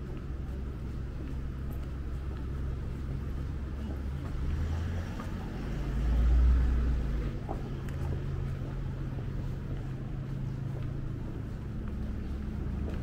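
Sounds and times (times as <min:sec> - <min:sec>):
steady low hum: 0:00.0 - 0:13.0
vehicle engine running: 0:00.0 - 0:13.0.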